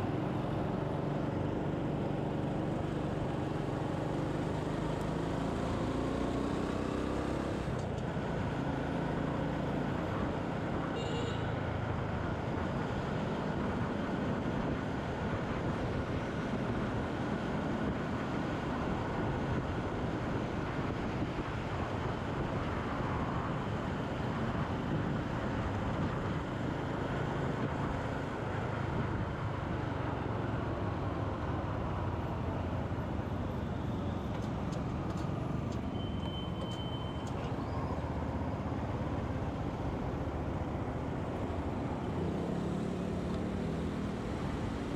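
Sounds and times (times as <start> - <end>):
surrounding traffic: 0.0 - 44.9
short high beep: 35.9 - 37.3.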